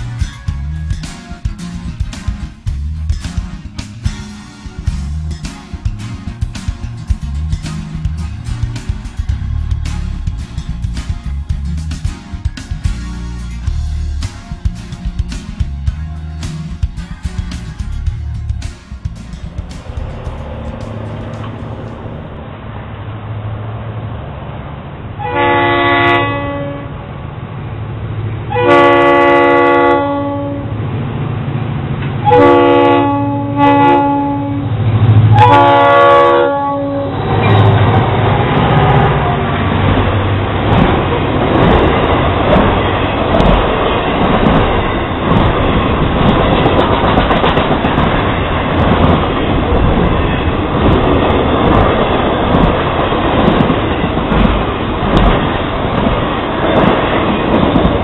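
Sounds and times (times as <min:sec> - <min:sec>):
locomotive engine rumble: 0:00.0 - 0:25.2, 0:36.7 - 0:58.0
train wheels clattering on rails: 0:13.7 - 0:22.4, 0:39.7 - 0:58.0
train horn blasts: 0:25.2 - 0:27.0, 0:28.5 - 0:30.8, 0:32.2 - 0:37.8.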